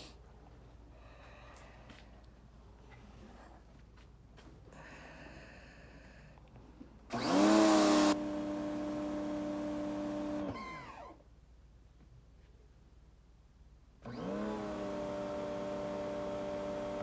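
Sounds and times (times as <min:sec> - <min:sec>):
pressure washer motor humming: 0:07.1 - 0:11.0, 0:14.1 - 0:17.0
motor winding down with squeal: 0:10.2 - 0:11.2.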